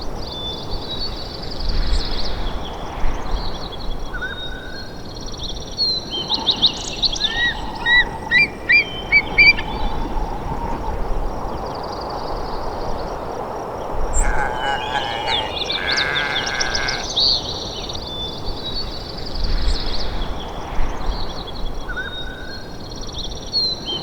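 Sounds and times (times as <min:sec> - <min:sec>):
songbirds singing: 0:14.2 - 0:18.0.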